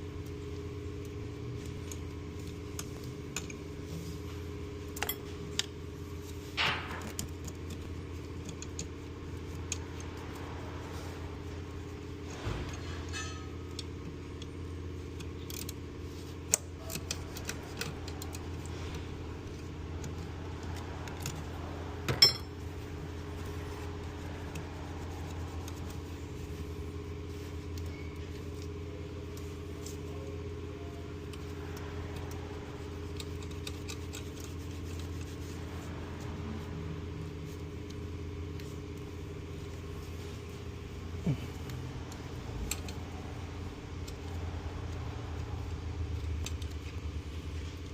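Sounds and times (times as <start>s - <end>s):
metallic tool clinks: 22.2s - 22.5s.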